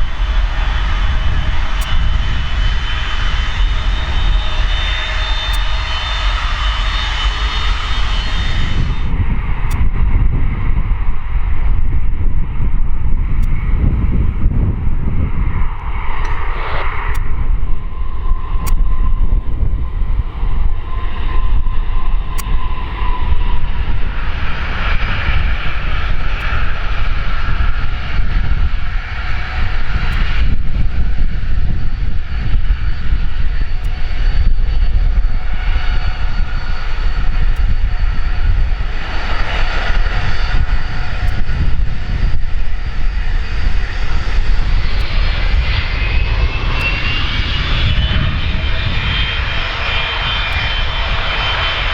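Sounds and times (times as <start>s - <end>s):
aircraft engines whining: 0.0s - 51.9s.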